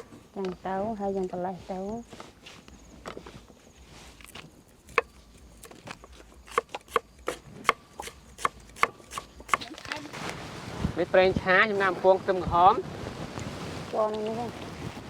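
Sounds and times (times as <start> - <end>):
knife chopping on cutting board: 6.4 - 9.7.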